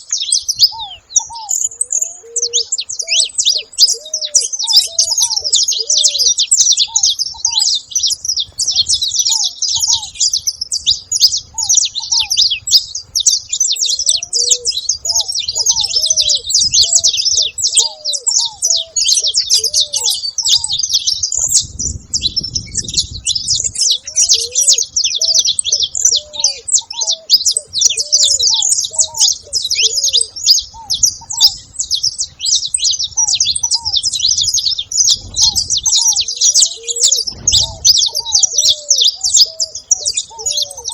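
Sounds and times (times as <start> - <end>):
finches chattering: 0.0 - 40.9
low rumble: 34.9 - 36.3.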